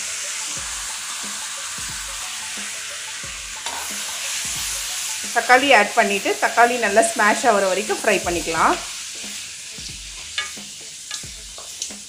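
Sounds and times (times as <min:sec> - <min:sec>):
onions sizzling in hot oil: 0:00.0 - 0:12.0
spatula stirring: 0:08.9 - 0:12.0.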